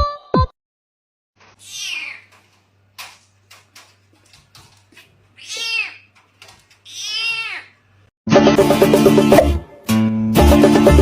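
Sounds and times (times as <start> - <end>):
cat meowing: 1.6 - 2.3, 5.4 - 6.1, 6.8 - 7.8.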